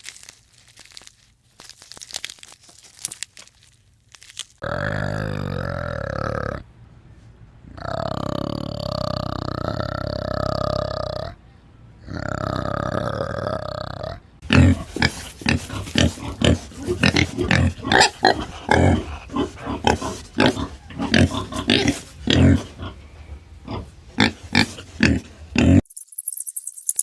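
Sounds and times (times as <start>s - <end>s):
animal grunting: 4.6s - 6.7s, 7.7s - 11.4s, 12.0s - 25.9s
animal drawn-out call: 12.0s - 25.8s.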